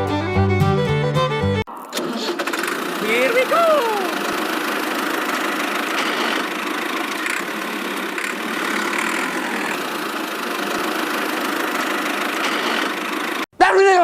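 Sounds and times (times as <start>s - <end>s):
small motor running: 2.4s - 13.4s.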